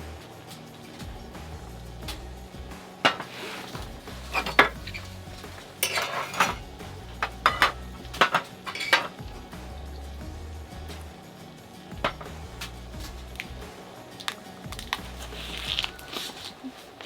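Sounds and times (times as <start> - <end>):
utensils scraping against a dish: 2.9 - 9.2.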